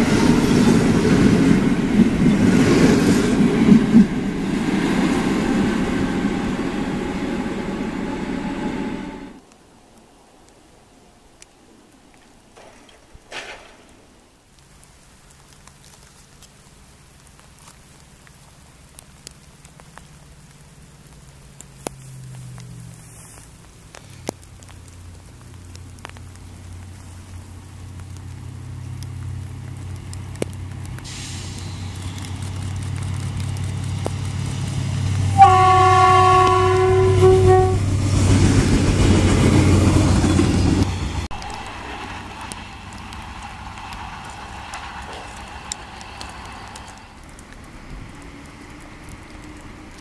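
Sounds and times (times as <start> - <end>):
train rumble and wheel noise: 0.0 - 9.4, 20.5 - 50.0
train horn blast: 35.1 - 38.2.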